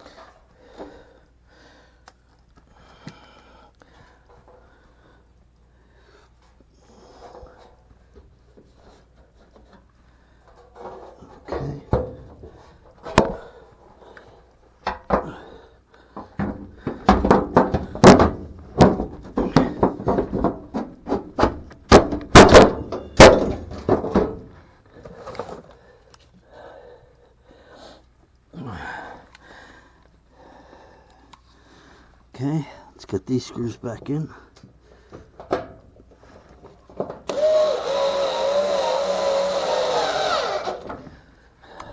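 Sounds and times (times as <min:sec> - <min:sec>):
metal panel knocking and clanking: 0:16.3 - 0:24.5.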